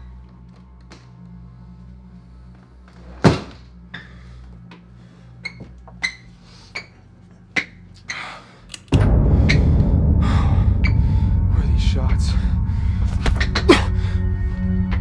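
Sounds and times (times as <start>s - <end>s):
loud dense sound: 8.9s - 15.0s
low steady hum: 8.9s - 15.0s.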